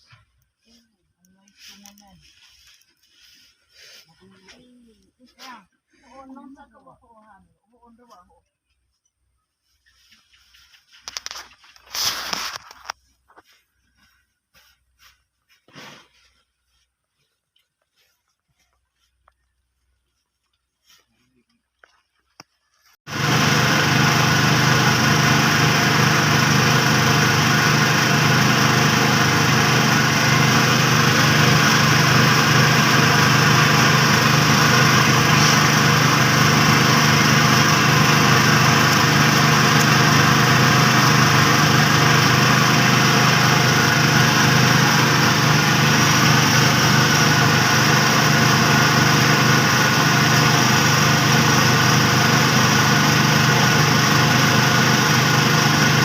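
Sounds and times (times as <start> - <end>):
thresher whirring: 23.1 - 56.0
threshing machine engine drone: 23.1 - 56.0.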